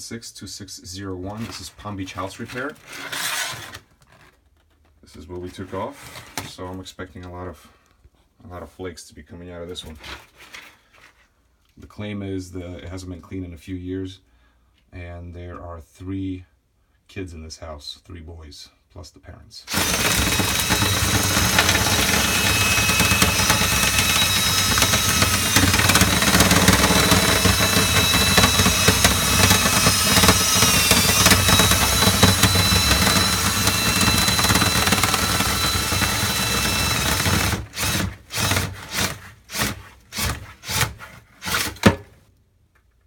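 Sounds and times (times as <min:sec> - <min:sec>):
power tool motor whining: 0:19.7 - 0:39.1.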